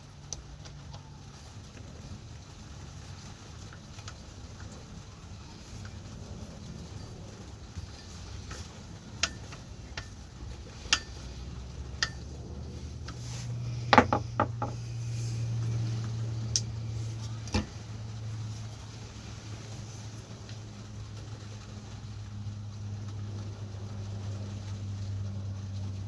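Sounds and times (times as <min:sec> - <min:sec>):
low steady hum: 0:00.0 - 0:26.0
clicks and knocks on bench drill: 0:10.8 - 0:11.4, 0:13.8 - 0:14.8.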